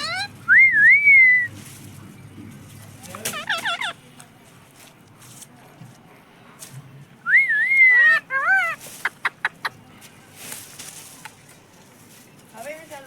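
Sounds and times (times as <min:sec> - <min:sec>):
parrot squawky calls: 0:00.0 - 0:00.6, 0:03.3 - 0:04.0, 0:07.6 - 0:09.4
parrot whistling: 0:00.0 - 0:01.5, 0:07.3 - 0:08.8.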